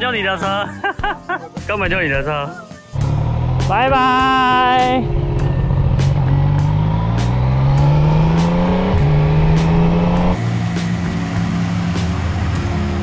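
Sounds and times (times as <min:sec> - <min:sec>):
motorcycle engine accelerating: 0:03.0 - 0:13.0.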